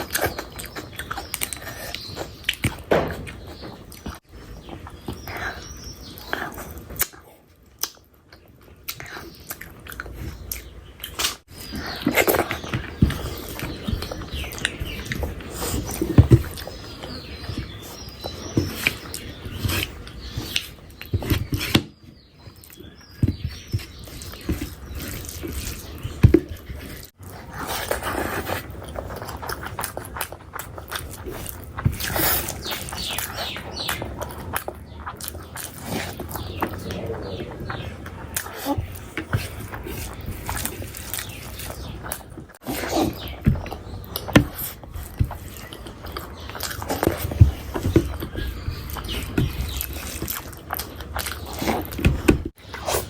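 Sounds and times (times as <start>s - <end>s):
close-miked chewing and smacking: 0.0s - 53.0s.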